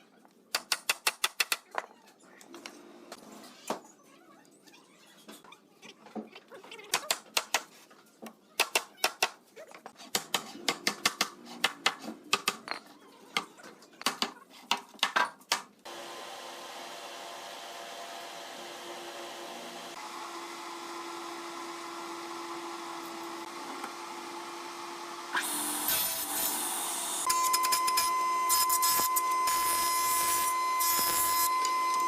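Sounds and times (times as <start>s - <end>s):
electric motor humming: 15.9s - 27.3s.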